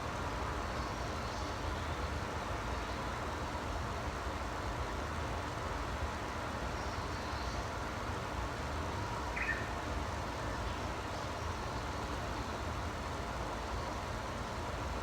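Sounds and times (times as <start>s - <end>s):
low rumble and hiss: 0.0s - 15.0s
faint bird chirps: 9.3s - 9.8s.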